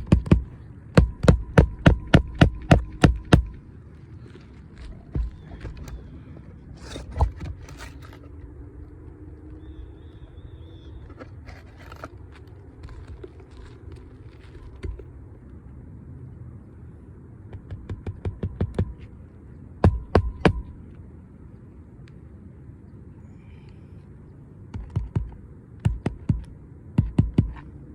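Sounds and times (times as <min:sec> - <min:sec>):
hammer striking roof shingle: 0:00.0 - 0:03.6, 0:17.6 - 0:19.0, 0:19.8 - 0:20.7, 0:24.8 - 0:27.7.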